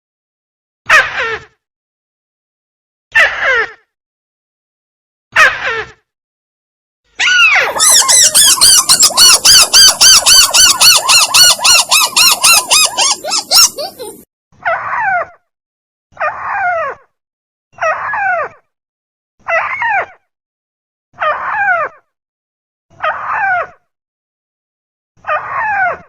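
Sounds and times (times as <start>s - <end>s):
rail bird calling: 7.7s - 14.2s.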